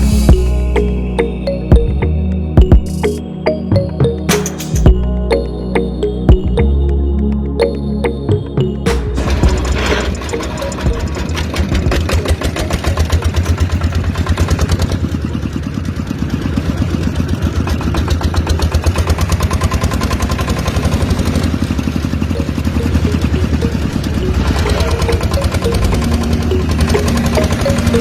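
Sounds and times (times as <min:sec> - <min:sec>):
engine idling with chugging: 0:09.2 - 0:28.0.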